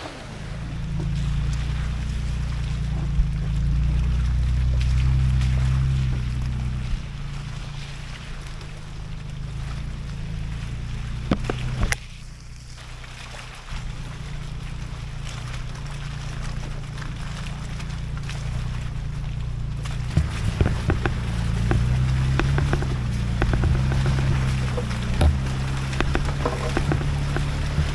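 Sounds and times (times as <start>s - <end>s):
engine running at low revs: 0.0s - 27.9s
sharp knocks: 20.0s - 27.9s.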